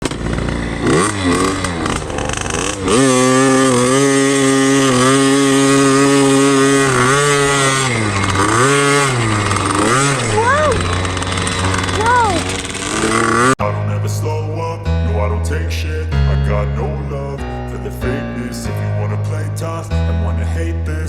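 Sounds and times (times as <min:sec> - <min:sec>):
dirt bike engine revving: 0:00.0 - 0:13.6.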